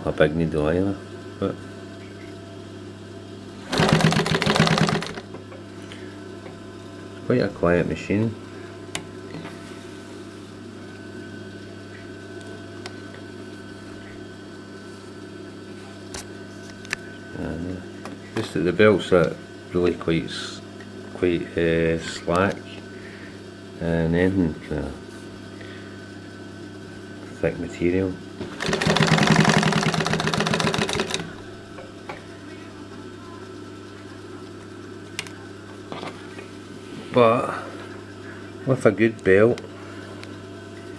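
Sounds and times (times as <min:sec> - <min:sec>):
motor humming: 0:03.3 - 0:11.0, 0:25.6 - 0:38.6
sewing machine motor hum: 0:03.5 - 0:06.6, 0:28.4 - 0:31.5.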